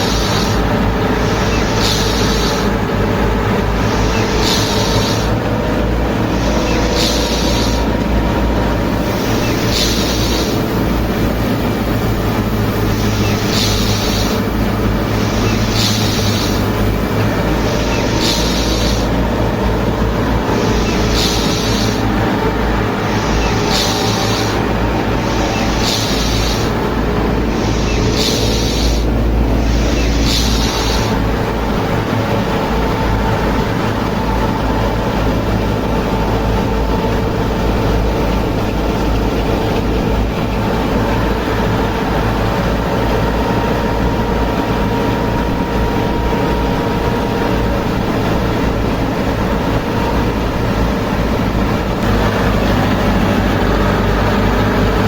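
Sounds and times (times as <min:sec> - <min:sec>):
short hissing bursts: 0:00.0 - 0:02.8, 0:03.8 - 0:05.4, 0:06.2 - 0:08.0, 0:09.0 - 0:31.3
tractor and threshing machine rumbling: 0:00.0 - 0:55.0.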